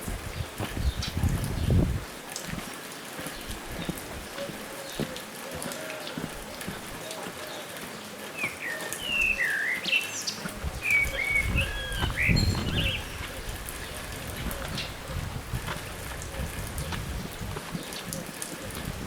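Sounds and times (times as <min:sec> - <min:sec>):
whistled bird calls: 0:08.4 - 0:13.2.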